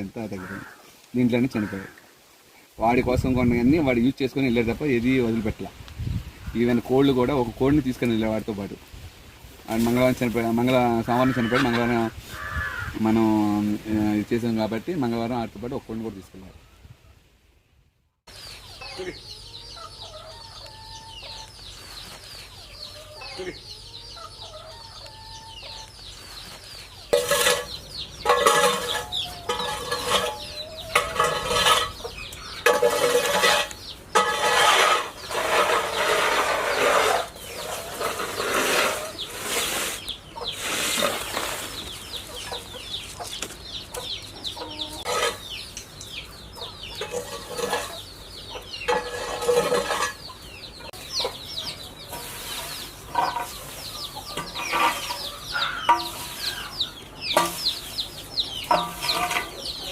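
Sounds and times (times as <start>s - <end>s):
chickens clucking and squawking: 9.7s - 14.2s, 18.3s - 59.9s.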